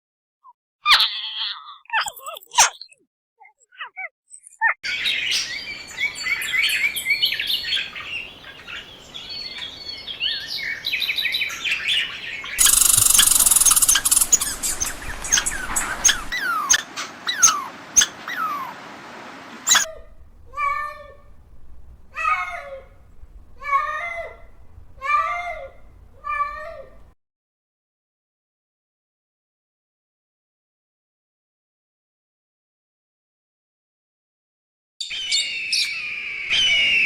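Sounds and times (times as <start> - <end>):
birds chirping: 3.7 - 27.1
loud hissing noise: 12.6 - 16.4.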